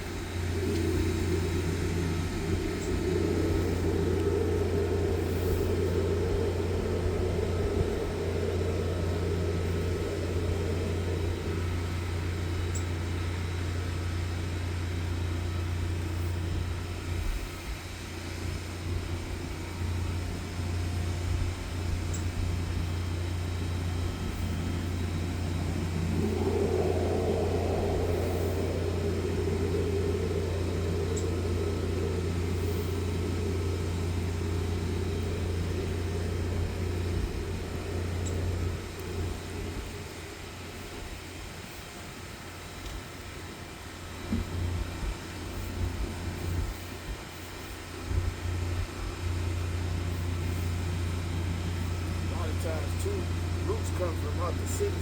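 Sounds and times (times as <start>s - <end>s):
sewer jetter engine hum: 0.0s - 55.0s
pump and water noise: 20.4s - 55.0s.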